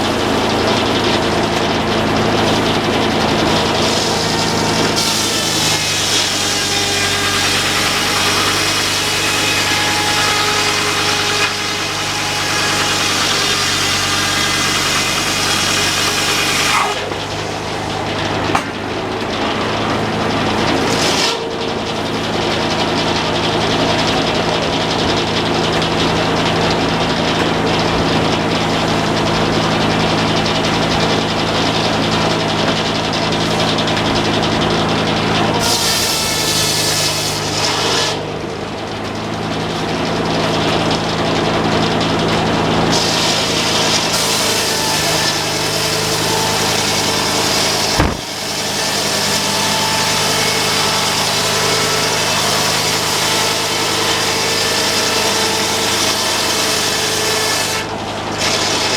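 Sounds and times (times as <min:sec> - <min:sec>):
sawmill engine running: 0:00.0 - 0:58.9
sharp knock: 0:48.0 - 0:48.5.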